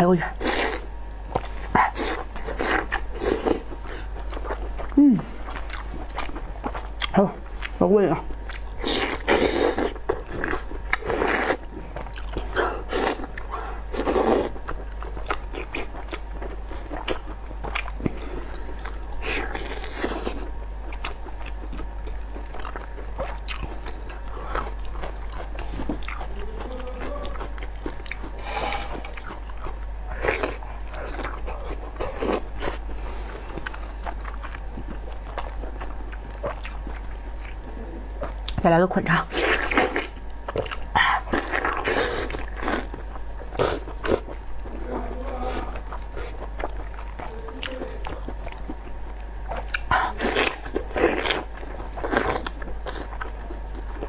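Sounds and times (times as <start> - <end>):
wet chewing mouth sounds: 0.0 - 54.0.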